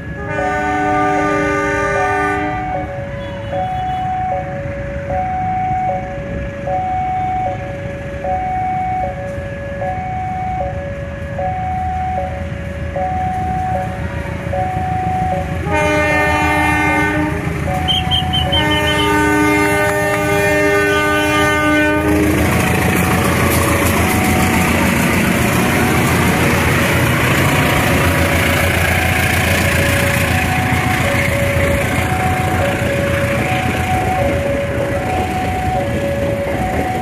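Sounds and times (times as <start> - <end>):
locomotive horn blasts: 0.1 - 4.3, 15.6 - 22.4
level-crossing alarm two-tone chime: 9.8 - 15.6, 30.0 - 37.0
train wheels clattering on rails: 14.6 - 37.0.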